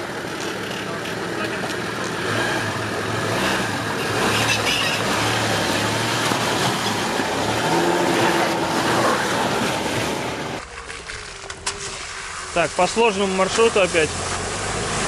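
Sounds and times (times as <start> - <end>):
car engine running under load: 0.0 - 10.6.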